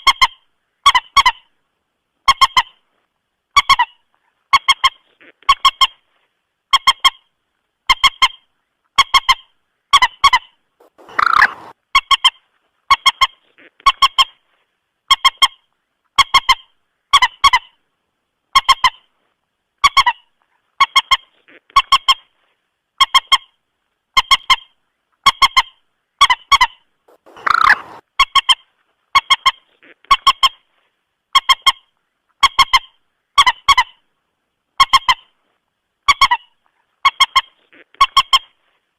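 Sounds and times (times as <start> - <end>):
moorhen honking calls: 10.8 - 11.7, 27.1 - 28.0.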